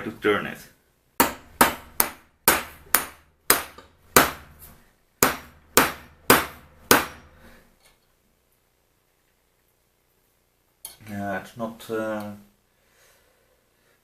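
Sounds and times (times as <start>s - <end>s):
hammer striking metal: 1.2s - 4.6s, 5.2s - 7.4s.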